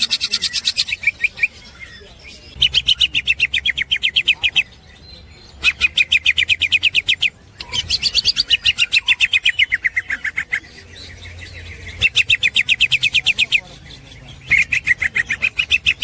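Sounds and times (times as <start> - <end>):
bird chattering sharp repeated notes: 2.5 - 4.8, 5.5 - 10.7, 11.9 - 16.0.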